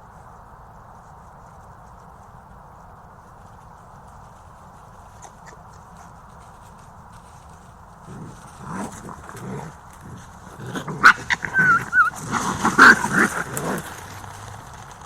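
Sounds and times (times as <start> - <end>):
animal vocal noises: 3.2 - 15.0.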